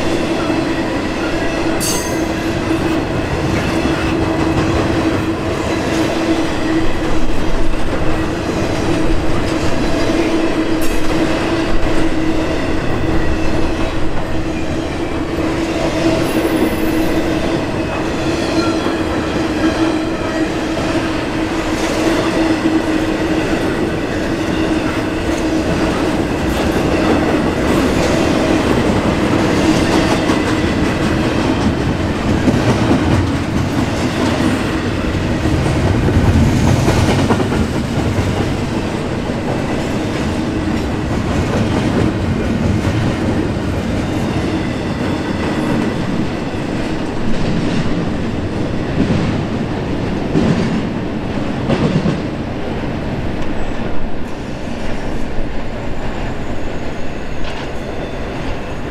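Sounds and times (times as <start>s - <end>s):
freight train wheels rumbling: 0.0s - 58.9s.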